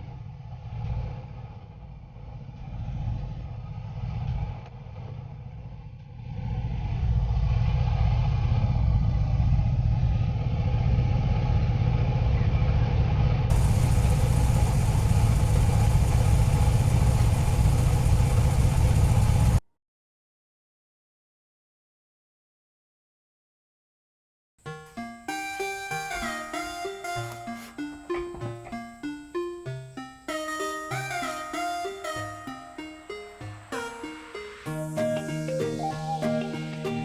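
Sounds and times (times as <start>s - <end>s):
car engine running: 13.5s - 19.6s.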